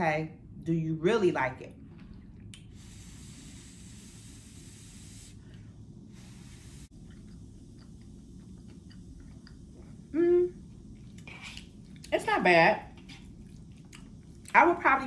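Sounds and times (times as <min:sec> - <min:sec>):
soft hiss: 0:01.8 - 0:12.2
person chewing food: 0:06.9 - 0:12.1, 0:13.0 - 0:14.6.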